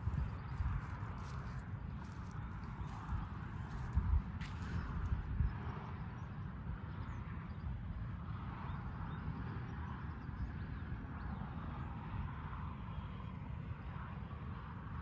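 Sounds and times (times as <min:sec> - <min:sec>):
low unsteady rumble: 0:00.0 - 0:05.5.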